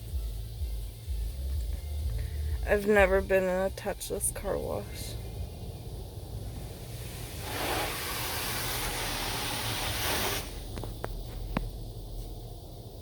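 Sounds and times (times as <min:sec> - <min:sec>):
low steady rumble: 0:00.0 - 0:13.0
high-pressure water jets hissing: 0:05.0 - 0:11.1.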